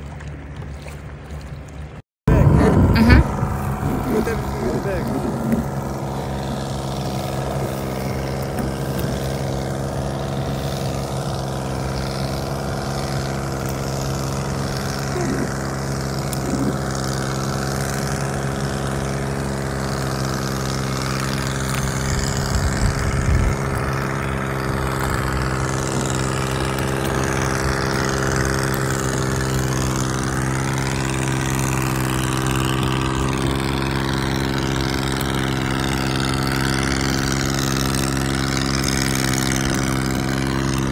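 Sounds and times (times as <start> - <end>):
motorboat engine running: 0.0 - 40.9
water noise: 0.0 - 40.9
wind: 0.0 - 40.9.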